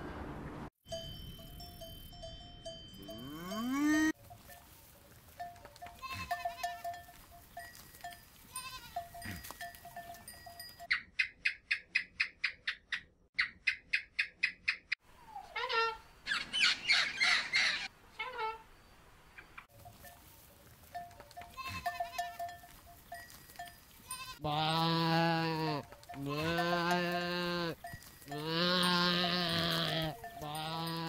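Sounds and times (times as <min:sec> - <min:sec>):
goat bleating: 0:05.9 - 0:06.9, 0:08.5 - 0:10.3, 0:21.4 - 0:22.5, 0:24.0 - 0:31.0.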